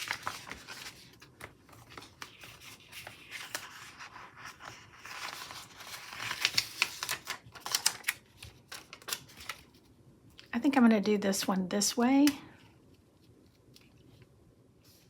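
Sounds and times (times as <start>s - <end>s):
sharp paper crackles: 0.0s - 9.8s
paper stickers rustling and crinkling: 0.0s - 10.5s.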